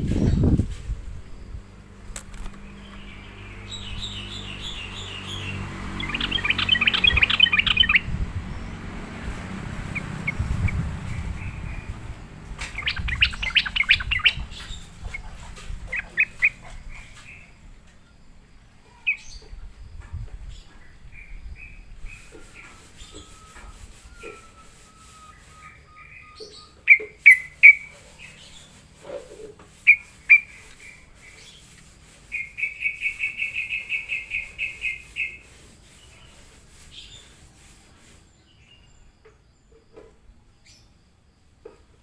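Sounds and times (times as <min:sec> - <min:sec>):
bird song with bubbling chirps: 0:06.0 - 0:08.1, 0:12.7 - 0:15.3.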